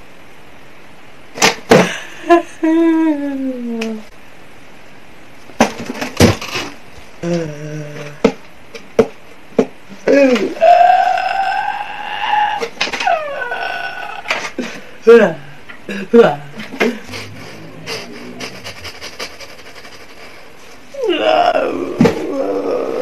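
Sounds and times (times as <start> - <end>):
wordless vocal sounds: 15.9 - 21.7.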